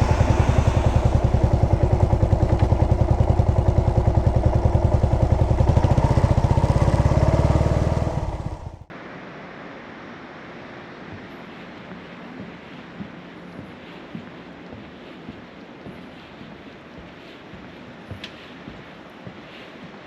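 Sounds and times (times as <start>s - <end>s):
single-cylinder motorcycle engine idling: 0.0s - 8.9s
outdoor ambience hiss: 0.0s - 20.0s.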